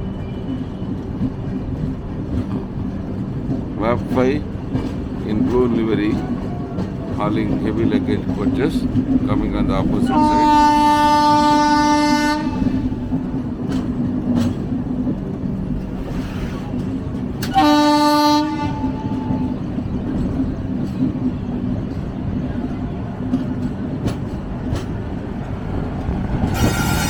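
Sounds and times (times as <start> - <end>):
train wheels rumbling and clattering: 0.0 - 27.0
locomotive horn blast: 10.0 - 13.0, 17.4 - 19.6, 26.5 - 27.0.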